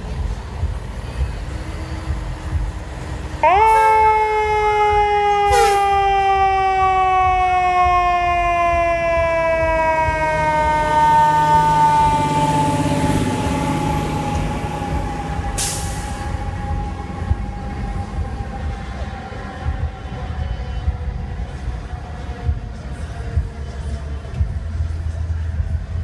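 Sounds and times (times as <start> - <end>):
truck engine: 0.0 - 26.0
fire engine warning tone: 3.4 - 21.5
air hisses: 15.6 - 16.4.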